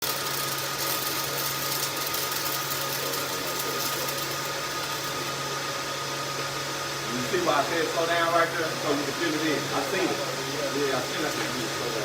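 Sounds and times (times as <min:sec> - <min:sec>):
welding arc crackling: 0:00.0 - 0:05.6.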